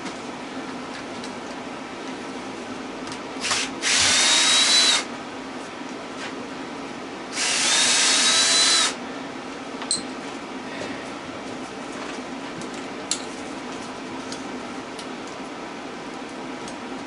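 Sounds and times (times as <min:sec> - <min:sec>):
power drill spinning out bolts: 0:03.4 - 0:05.1, 0:07.4 - 0:09.0.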